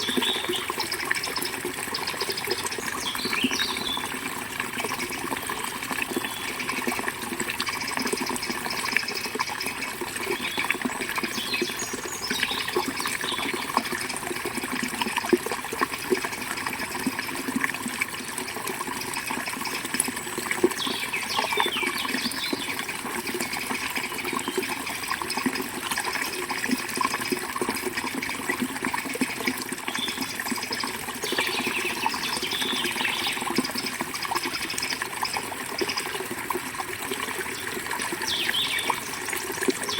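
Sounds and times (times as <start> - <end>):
bird chirps: 38.2 - 39.0.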